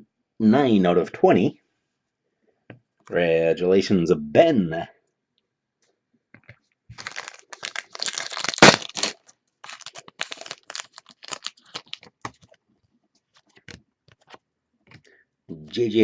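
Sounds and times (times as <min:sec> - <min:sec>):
plastic wrapper tearing and crinkling: 0:06.9 - 0:12.6.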